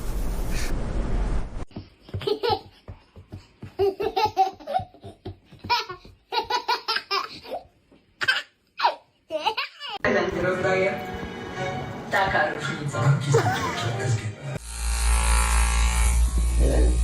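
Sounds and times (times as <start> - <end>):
person laughing: 13.3 - 13.9.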